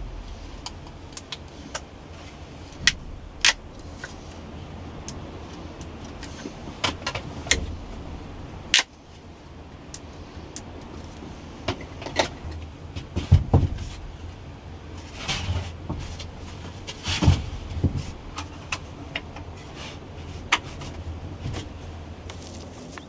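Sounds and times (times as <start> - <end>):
loud thumps: 0.0 - 1.9, 2.6 - 4.3
steady low rumble: 0.0 - 23.0.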